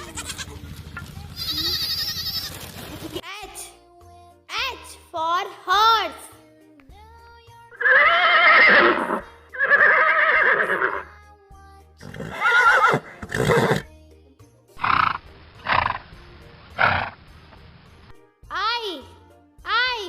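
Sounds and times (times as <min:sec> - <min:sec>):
horse neighing: 0:07.8 - 0:11.0, 0:12.0 - 0:13.9, 0:14.8 - 0:16.0, 0:16.8 - 0:17.2
horse snorting: 0:12.0 - 0:13.9, 0:14.8 - 0:16.1, 0:16.8 - 0:17.2.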